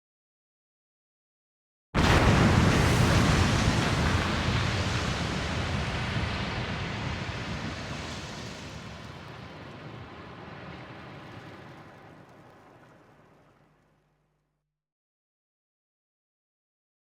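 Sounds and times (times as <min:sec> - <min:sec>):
impact hit with rumbling wash: 0:02.0 - 0:13.3.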